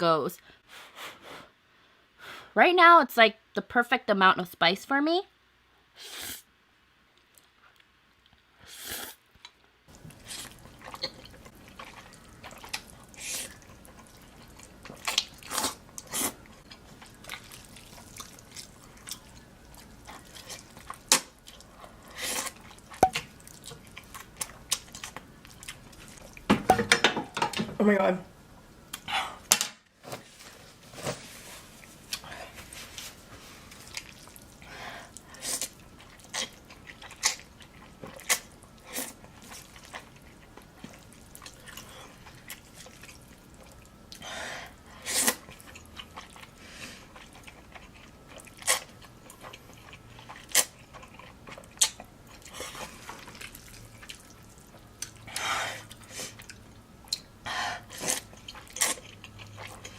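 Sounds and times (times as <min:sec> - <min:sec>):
person chewing: 0:09.9 - 0:26.5, 0:31.6 - 0:59.9.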